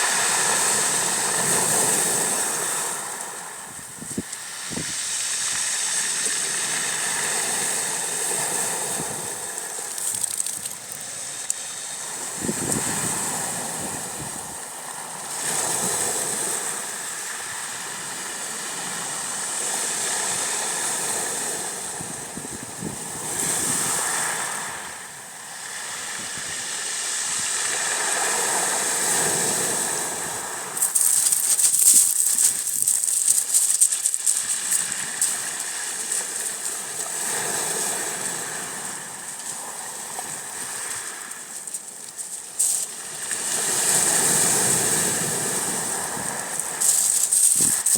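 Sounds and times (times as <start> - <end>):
small waves washing onto shore: 0.0 - 47.9
wave breaking with crackling fizz: 30.8 - 36.7.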